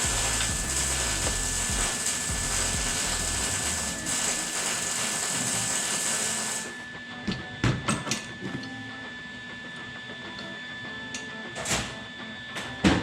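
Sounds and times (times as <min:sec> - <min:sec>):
steady hiss: 0:00.0 - 0:06.6.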